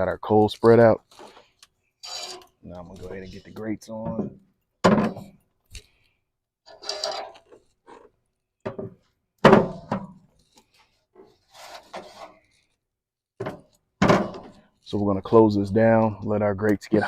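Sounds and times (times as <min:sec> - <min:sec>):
metal grates scraping: 0:02.0 - 0:04.3, 0:06.7 - 0:08.1.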